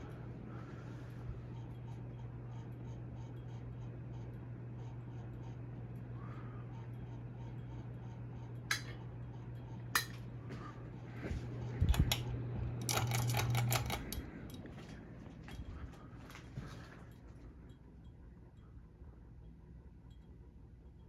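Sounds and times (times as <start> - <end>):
ceiling fan motor humming: 0.0 - 21.0
clicking and clinking: 11.9 - 14.7.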